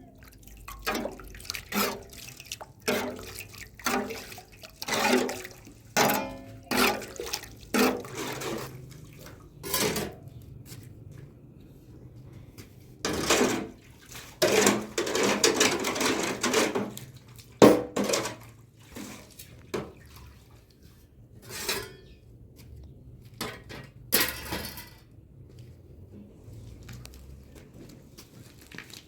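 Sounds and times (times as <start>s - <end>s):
kitchenware clattering and scraping: 2.8s - 10.3s, 13.0s - 20.0s, 21.4s - 22.2s, 23.4s - 25.1s.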